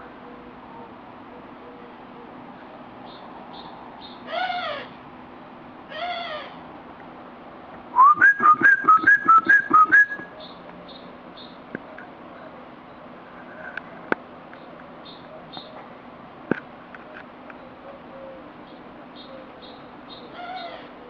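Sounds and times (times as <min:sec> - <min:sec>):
whistled bird-like calls: 0:08.0 - 0:10.6.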